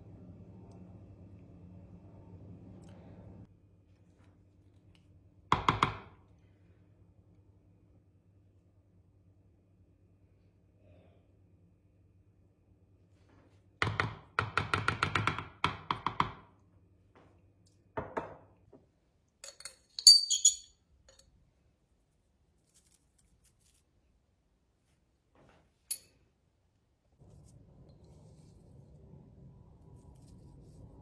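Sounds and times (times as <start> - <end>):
bright high clinks: 19.6 - 20.8.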